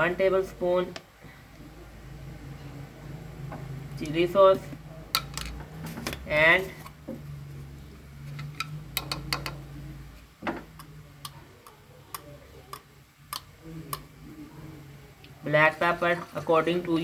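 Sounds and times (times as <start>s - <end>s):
utensils tapping a bowl: 8.4s - 9.6s.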